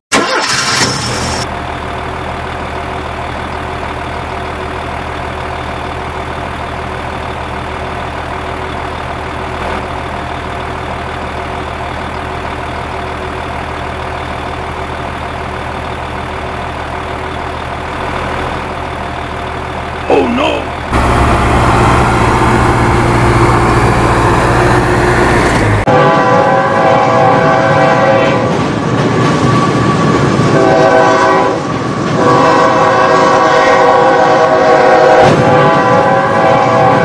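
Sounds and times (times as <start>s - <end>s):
truck engine idling: 0.2s - 25.9s.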